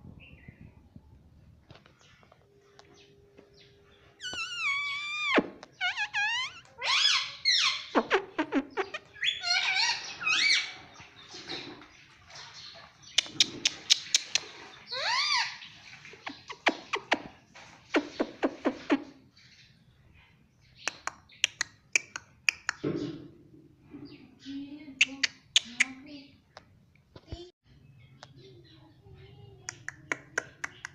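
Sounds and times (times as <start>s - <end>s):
parrot chattering and squawking: 4.2s - 10.8s, 13.2s - 15.6s.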